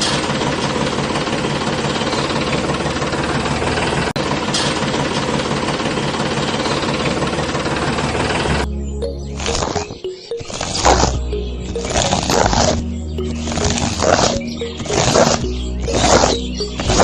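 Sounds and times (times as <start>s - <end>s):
engine running with fast knocking: 0.0s - 8.6s.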